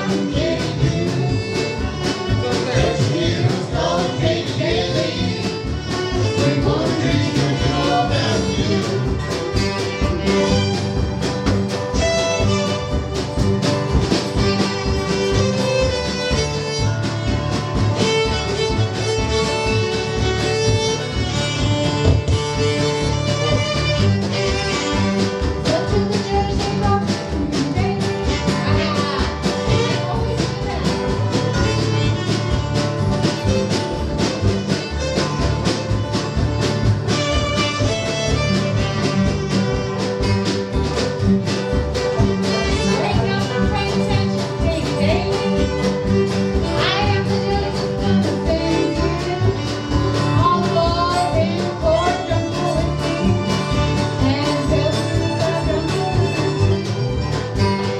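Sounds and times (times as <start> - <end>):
bluegrass band playing: 0.0 - 57.9
fiddle: 0.0 - 57.9.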